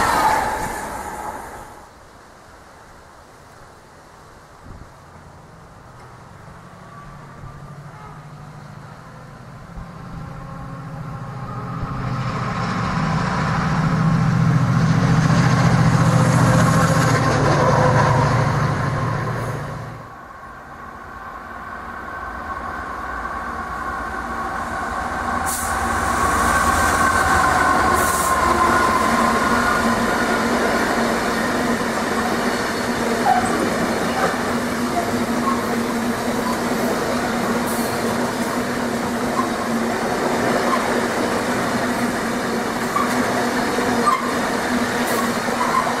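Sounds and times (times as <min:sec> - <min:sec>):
train whine: 0:00.0 - 0:02.1, 0:05.1 - 0:46.0
train passing: 0:00.0 - 0:02.8, 0:05.0 - 0:46.0
short high hisses: 0:25.4 - 0:26.2.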